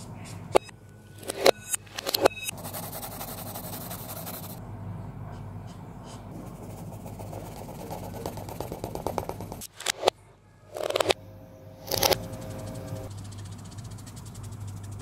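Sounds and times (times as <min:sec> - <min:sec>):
steady low hum: 0:00.0 - 0:15.0
pencil scratching on paper: 0:02.5 - 0:04.6, 0:06.1 - 0:09.7, 0:12.0 - 0:15.0.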